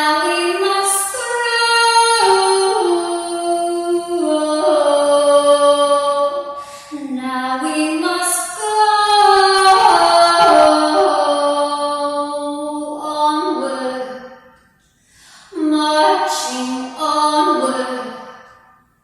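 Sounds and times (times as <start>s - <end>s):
woman singing slow worship song: 0.0s - 14.4s.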